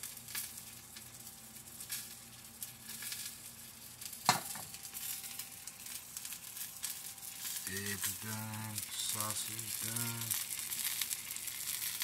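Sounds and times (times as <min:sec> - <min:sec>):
food sizzling in pans: 0:00.0 - 0:12.0.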